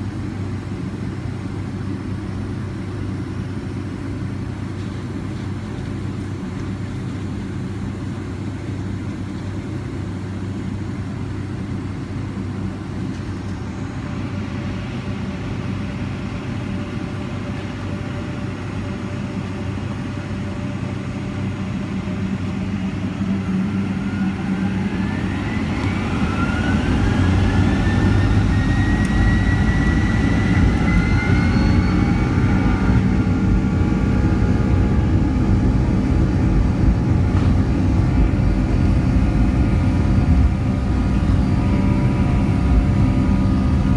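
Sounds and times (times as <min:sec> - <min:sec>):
jet engines spooling up: 0:10.4 - 0:43.9.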